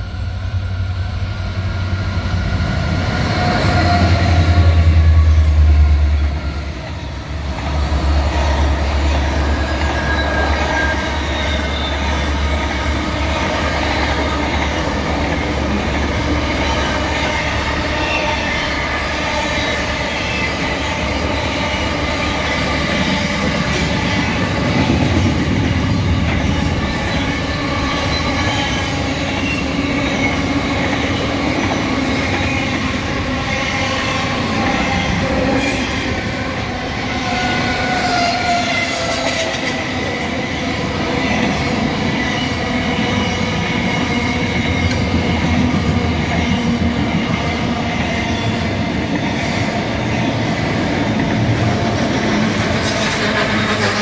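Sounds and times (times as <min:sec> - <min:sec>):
high ringing wheel squeal: 0:00.0 - 0:06.7, 0:08.9 - 0:12.5
freight train wheels rumbling: 0:00.0 - 0:54.0.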